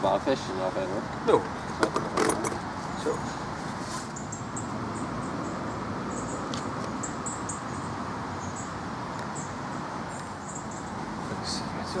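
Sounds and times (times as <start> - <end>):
rushing outdoor background noise: 0.0 - 12.0
small bird chirping: 4.0 - 11.7.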